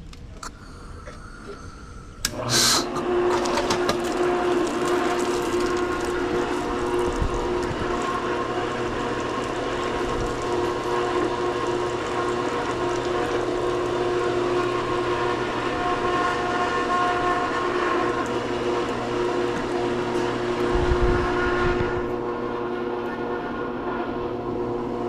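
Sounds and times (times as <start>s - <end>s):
pool pump motor hum: 0.0s - 25.0s
steady tones: 0.4s - 3.3s
water rushing through pump: 1.7s - 25.0s.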